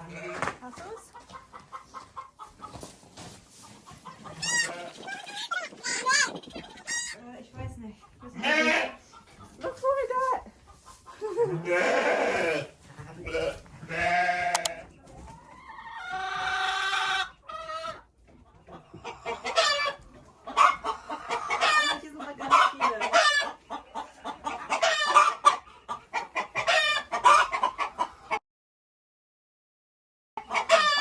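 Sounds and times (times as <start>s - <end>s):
chickens clucking: 0.0s - 28.4s, 30.4s - 31.0s
chicken drawn-out call: 3.7s - 7.2s, 13.4s - 14.9s, 15.5s - 18.0s, 19.0s - 22.0s, 30.4s - 31.0s.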